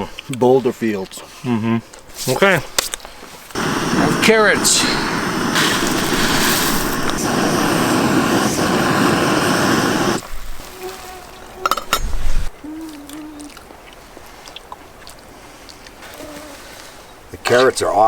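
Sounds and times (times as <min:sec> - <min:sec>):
frying and stove burner hiss: 0:03.6 - 0:10.4.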